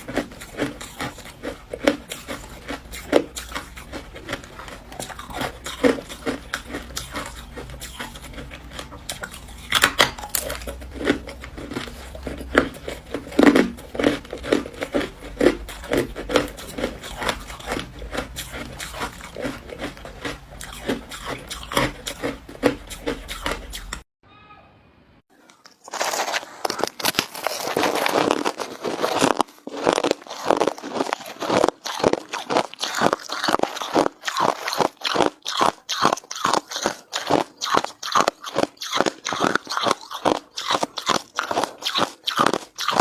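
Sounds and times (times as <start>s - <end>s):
person crunching ice: 0.0s - 24.0s, 25.5s - 43.0s.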